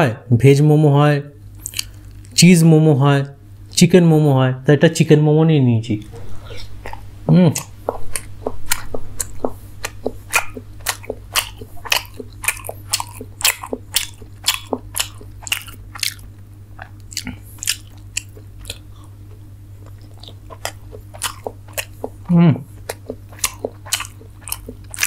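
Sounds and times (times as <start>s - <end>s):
steady low hum: 0.0s - 25.0s
person chewing with smacking: 1.6s - 2.4s, 6.0s - 25.0s.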